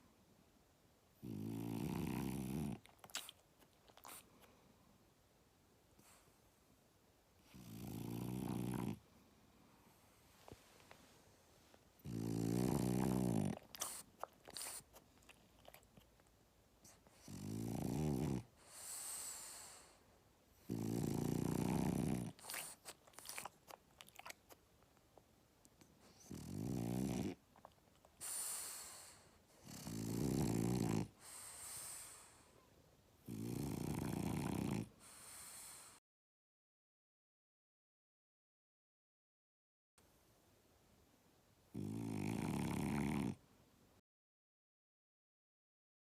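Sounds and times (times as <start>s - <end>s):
dog snoring: 1.2s - 4.2s, 7.4s - 9.0s, 12.0s - 15.8s, 16.8s - 20.0s, 20.6s - 24.3s, 26.0s - 32.5s, 33.2s - 36.0s, 41.7s - 43.4s
breathy hiss: 18.6s - 20.2s, 28.2s - 30.0s, 31.1s - 32.7s, 35.0s - 36.0s.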